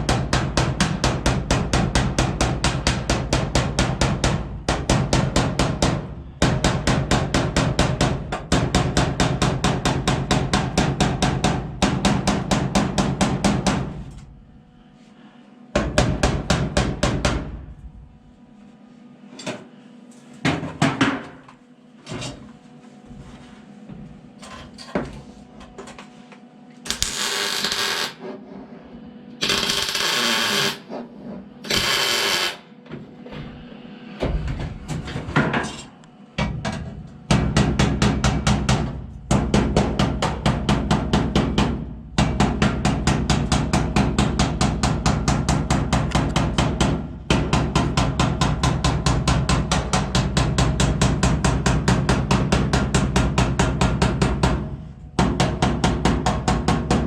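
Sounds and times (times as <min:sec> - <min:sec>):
welding crackle: 0:26.9 - 0:28.2, 0:29.4 - 0:30.8, 0:31.7 - 0:32.6.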